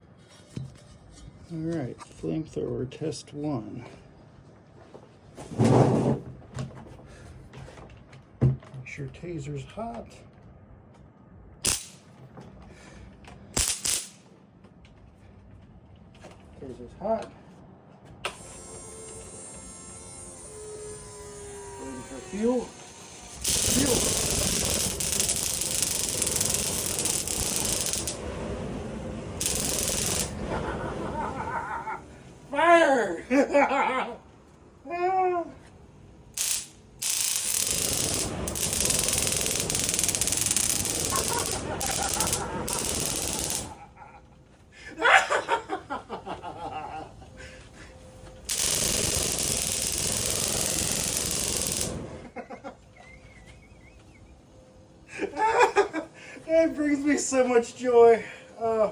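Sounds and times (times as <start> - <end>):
electric arc crackling buzz: 11.6 - 12.0, 18.4 - 28.3, 29.4 - 30.4, 36.3 - 43.8, 48.4 - 52.3
flamethrower firing: 11.6 - 12.1, 13.6 - 14.2, 21.8 - 31.8, 36.3 - 43.9, 48.4 - 52.4.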